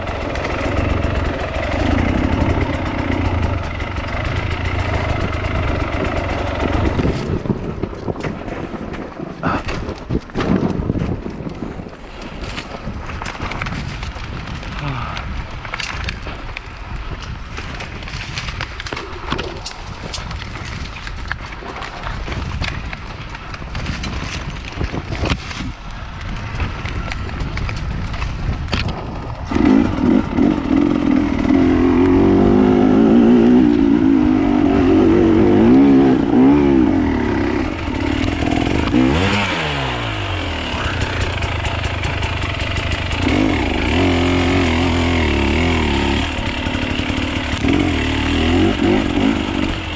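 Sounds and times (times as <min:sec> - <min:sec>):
motorcycle engine revving: 0:00.0 - 0:08.0, 0:29.4 - 0:49.9.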